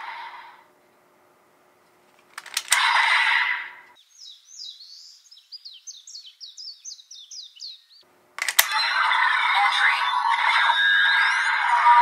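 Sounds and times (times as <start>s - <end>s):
songbirds chirping rapidly: 2.8s - 8.1s.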